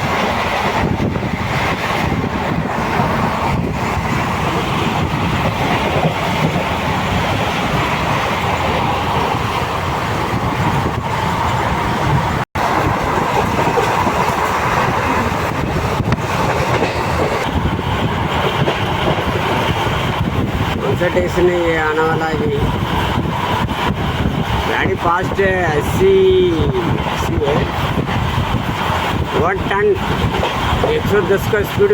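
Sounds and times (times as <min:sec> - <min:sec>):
train rumbling on rails: 0:00.0 - 0:31.9.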